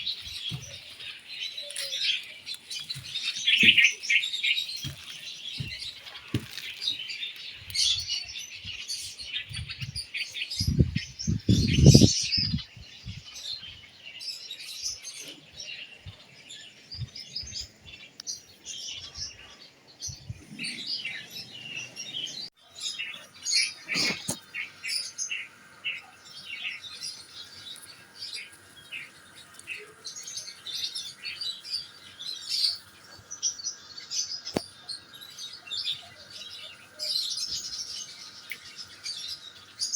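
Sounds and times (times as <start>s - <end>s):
handling thumps and rustles: 4.8s - 7.0s.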